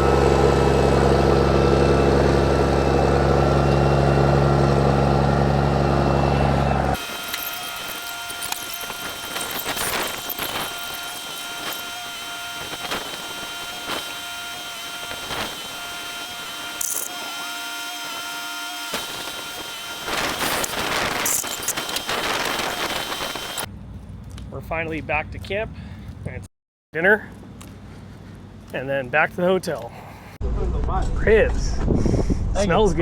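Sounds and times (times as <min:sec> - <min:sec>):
heavy diesel engine running: 0:00.0 - 0:08.6.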